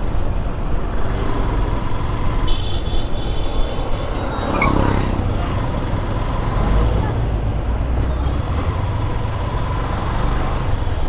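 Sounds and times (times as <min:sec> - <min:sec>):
motorcycle engine and road noise: 0:00.0 - 0:11.0.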